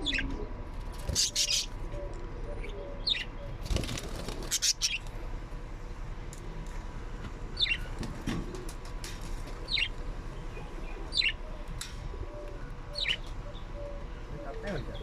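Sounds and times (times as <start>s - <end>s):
bird chirping: 2.6s - 3.6s, 7.6s - 7.9s, 9.7s - 11.4s, 12.9s - 15.0s.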